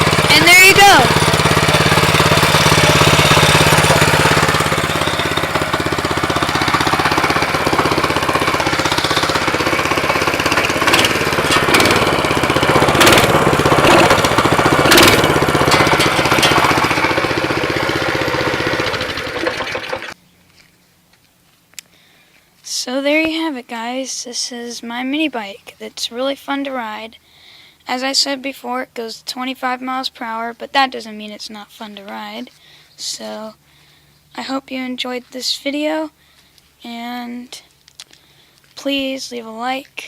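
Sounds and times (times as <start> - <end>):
sharp engine knocks: 0.0 - 20.2
small engine idling: 0.0 - 20.2.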